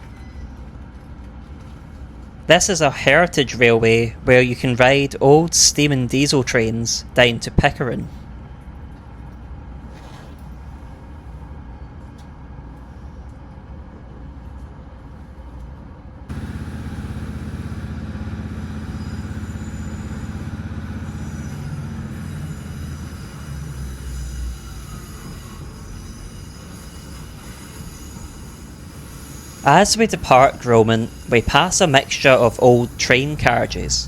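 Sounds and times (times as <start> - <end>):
train diesel engine rumble: 0.0 - 34.0.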